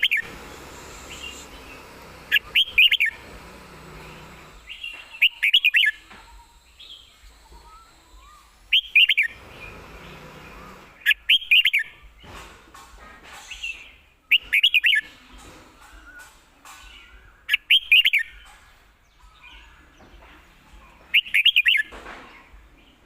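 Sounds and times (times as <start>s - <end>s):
bird singing whistled notes: 0.0s - 3.2s, 4.6s - 9.3s, 11.0s - 12.1s, 17.0s - 18.4s, 21.1s - 21.9s.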